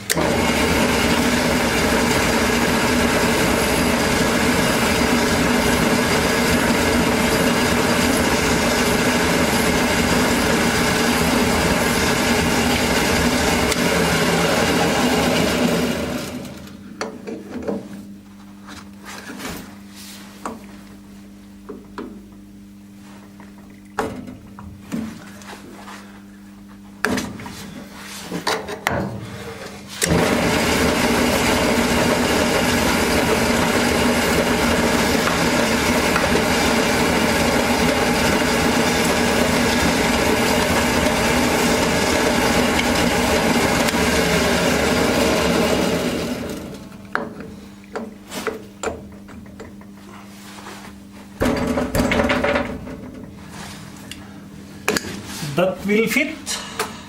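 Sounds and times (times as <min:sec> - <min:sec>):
electric workshop machine running: 0:00.0 - 0:17.0, 0:29.3 - 0:48.1.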